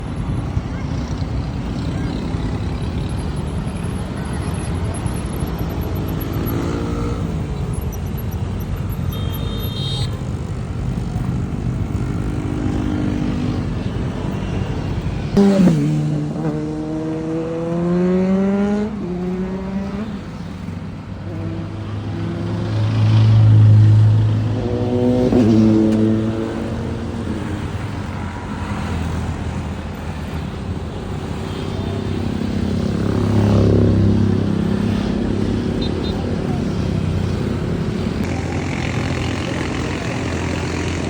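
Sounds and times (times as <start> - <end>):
motorcycle engines revving: 0.0 - 41.0.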